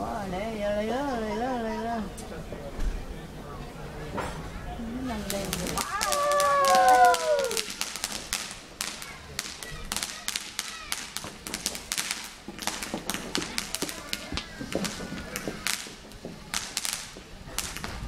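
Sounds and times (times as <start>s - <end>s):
fireworks crackling and popping: 4.2s - 18.0s.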